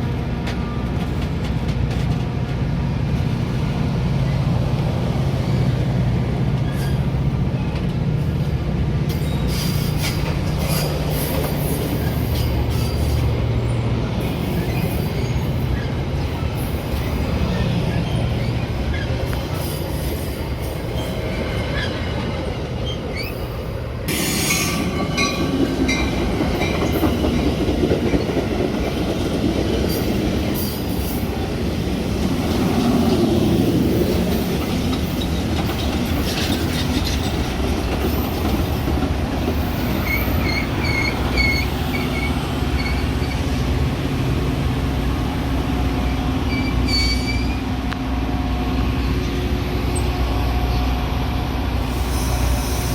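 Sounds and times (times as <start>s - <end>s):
train rumbling on rails: 0.0s - 52.9s
high-pitched wheel squeals: 39.6s - 43.5s, 46.5s - 47.7s.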